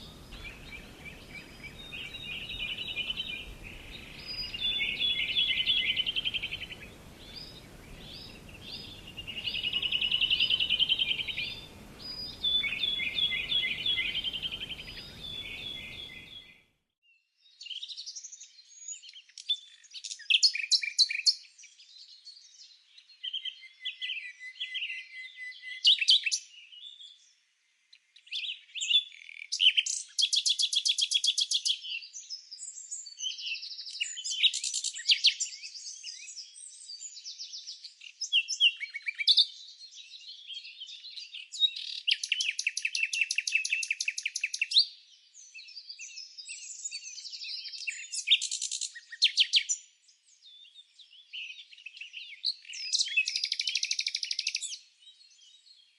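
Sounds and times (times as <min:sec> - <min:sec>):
faint background hiss: 0:00.0 - 0:16.6
songbirds singing and calling: 0:00.0 - 0:55.9.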